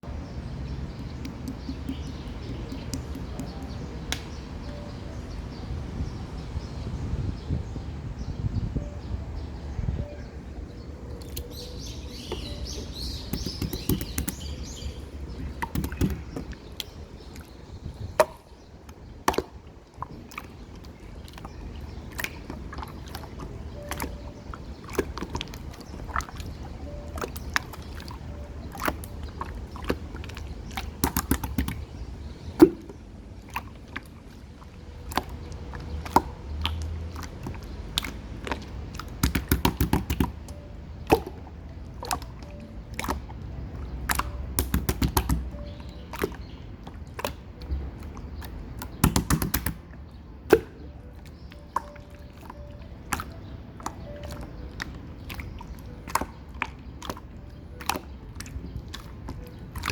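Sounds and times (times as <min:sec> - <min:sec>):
slime popping and clicking: 0:01.2 - 0:04.3, 0:13.3 - 0:14.5, 0:15.4 - 0:17.0, 0:31.0 - 0:31.8, 0:39.0 - 0:41.4, 0:44.1 - 0:45.5, 0:48.4 - 0:49.8.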